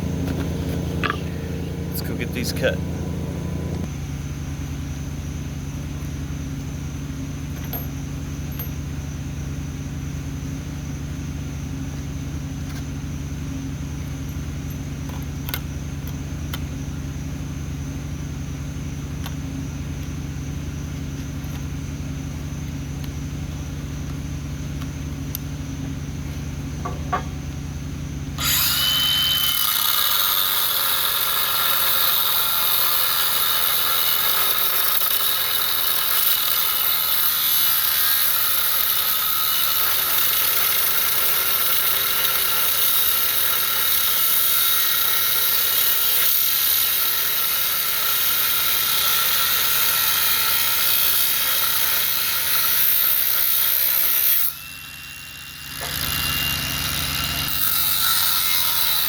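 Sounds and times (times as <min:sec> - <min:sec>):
power tool grinding metal: 0:00.0 - 0:03.9, 0:28.4 - 0:59.0
high whine of spinning tool: 0:00.0 - 0:59.0.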